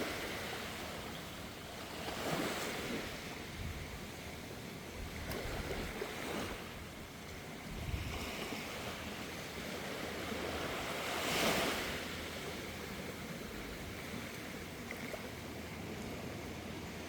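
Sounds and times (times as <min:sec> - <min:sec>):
sea waves washing in: 0:00.0 - 0:17.0
wind on microphone: 0:02.7 - 0:04.1, 0:04.9 - 0:09.0.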